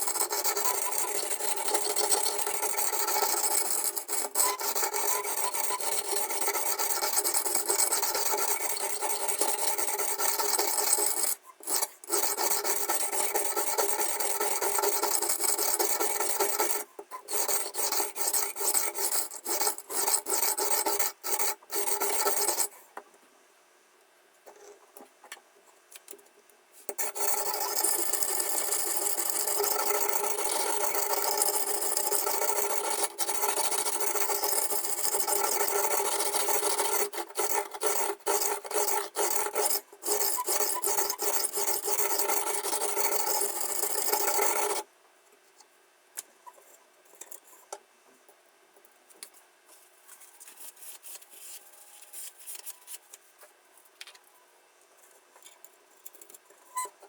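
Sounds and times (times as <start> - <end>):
sharpening stone rasping on knife: 0.0 - 22.7, 27.0 - 44.8.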